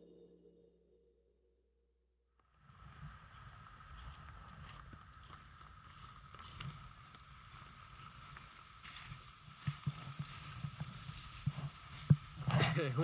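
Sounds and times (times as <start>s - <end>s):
wind on microphone: 2.7s - 13.0s.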